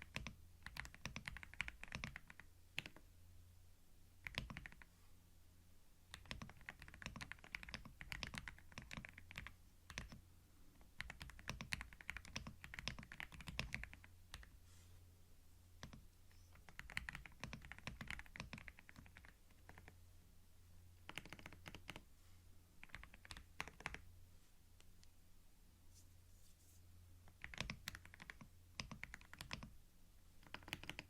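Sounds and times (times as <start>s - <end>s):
computer keyboard typing: 0.0s - 3.0s, 4.2s - 4.9s, 6.1s - 10.2s, 10.9s - 14.5s, 15.8s - 20.0s, 21.0s - 22.0s, 22.8s - 24.1s, 27.2s - 29.7s, 30.4s - 31.0s
faint low hum: 0.0s - 31.0s.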